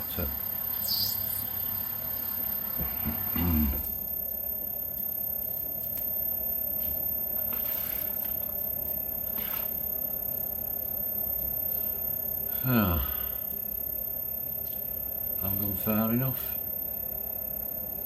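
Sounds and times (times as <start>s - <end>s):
lathe humming: 0.0s - 4.3s.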